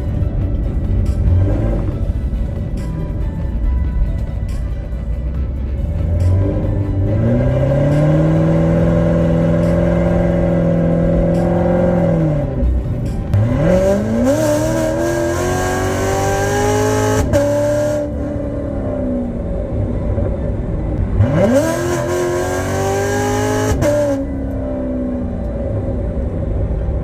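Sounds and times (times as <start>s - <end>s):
car engine revving: 0.0s - 4.6s, 5.3s - 27.0s.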